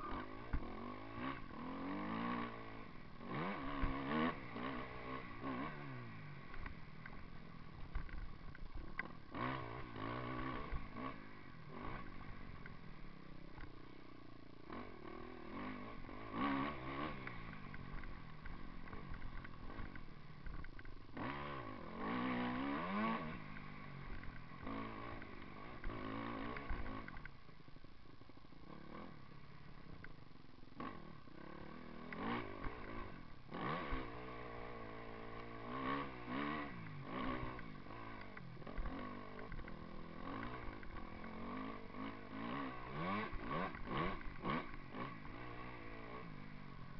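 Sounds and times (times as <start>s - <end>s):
motocross bike engine revving: 0.0s - 27.3s, 28.3s - 46.9s.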